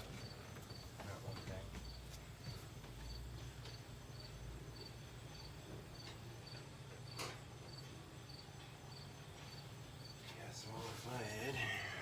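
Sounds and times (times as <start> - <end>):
cricket chirping: 0.0 - 10.8.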